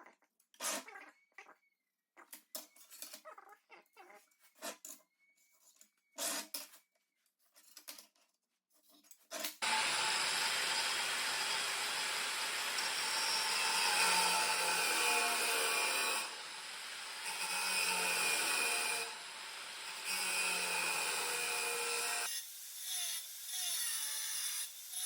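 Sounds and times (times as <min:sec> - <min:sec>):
power tool cutting steel: 0:09.6 - 0:25.0.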